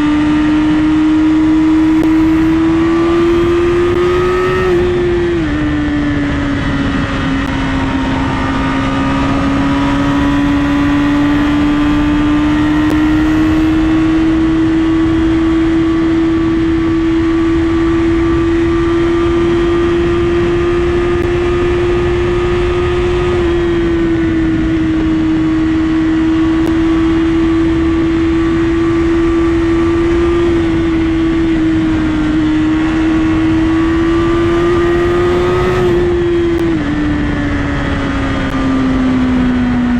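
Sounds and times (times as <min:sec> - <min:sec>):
motorcycle engine at high revs: 0:00.0 - 0:39.9
wind rushing: 0:01.0 - 0:15.6.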